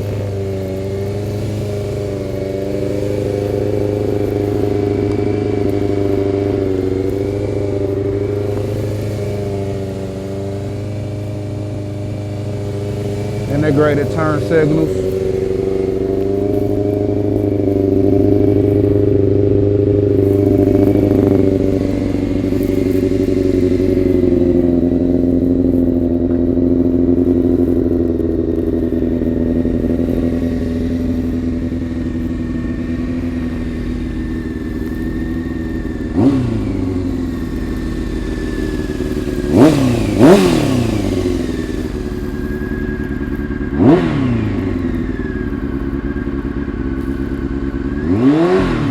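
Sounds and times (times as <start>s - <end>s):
engine throttle blips: 0.0s - 48.9s
motorcycle engine idling: 0.0s - 48.9s.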